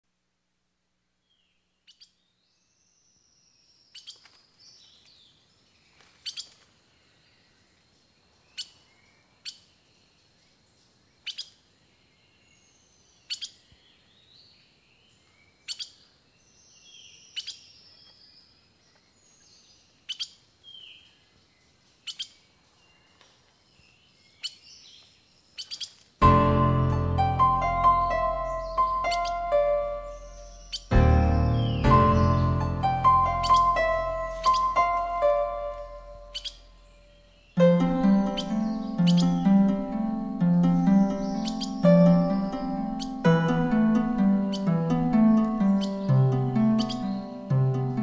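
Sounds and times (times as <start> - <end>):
faint background hiss: 0.0 - 48.0
songbird sharp chips: 33.4 - 36.6.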